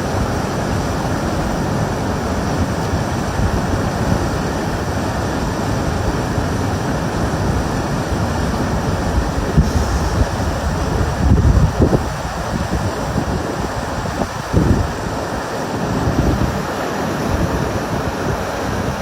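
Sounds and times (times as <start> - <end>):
river rushing over rocks: 0.0 - 19.0.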